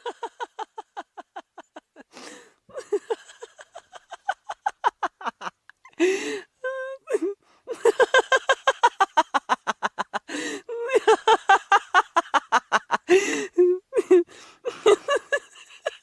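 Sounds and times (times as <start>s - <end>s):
person laughing hard: 0.0s - 6.3s, 7.7s - 16.0s
wheezing gasps for breath: 2.1s - 2.6s.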